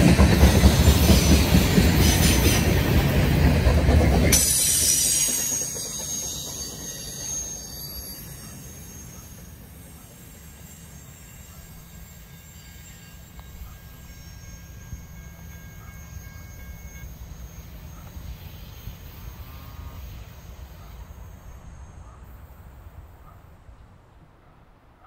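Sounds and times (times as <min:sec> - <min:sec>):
freight train cars rumbling: 0:00.0 - 0:24.2
wheel squeal: 0:00.3 - 0:22.2.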